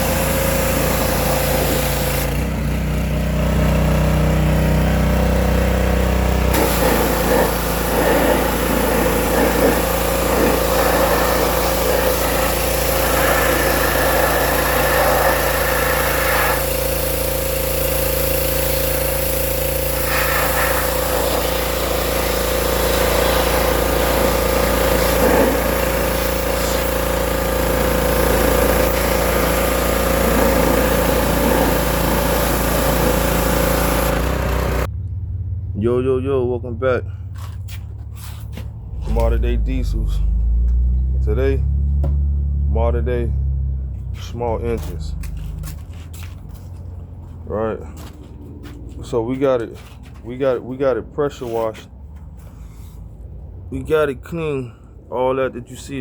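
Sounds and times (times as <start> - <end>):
water spray hissing: 0.0 - 2.2, 6.5 - 34.9
pressure washer engine running: 0.0 - 34.9, 44.2 - 49.1.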